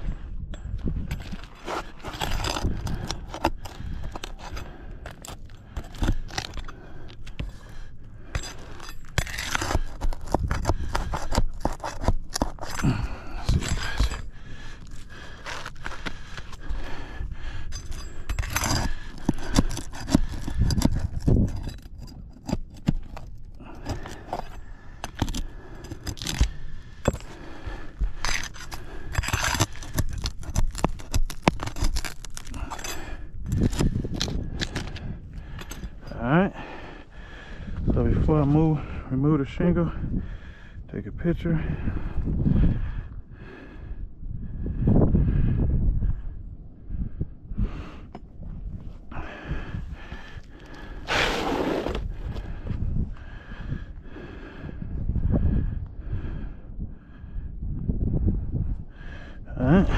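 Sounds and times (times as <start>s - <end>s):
tool scraping roof shingles: 1.3s - 16.6s, 17.8s - 36.0s, 50.7s - 52.4s.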